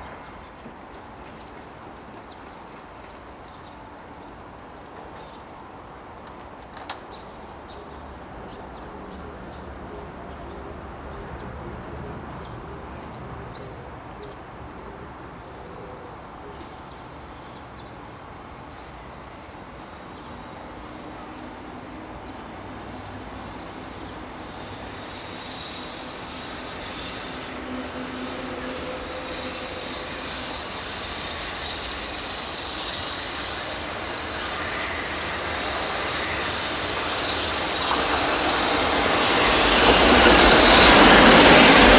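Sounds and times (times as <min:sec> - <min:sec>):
freight train rumble: 0:00.0 - 0:41.9
high wheel squeal: 0:25.0 - 0:41.9.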